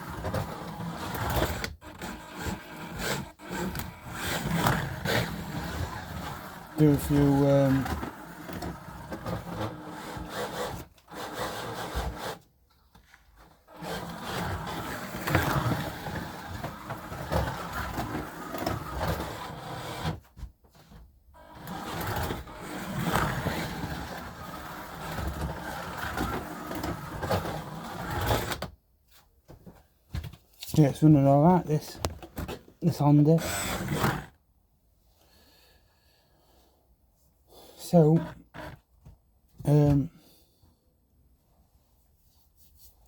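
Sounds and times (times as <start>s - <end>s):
slot car motor whirring: 0.0s - 12.4s, 21.4s - 28.5s, 33.4s - 34.3s.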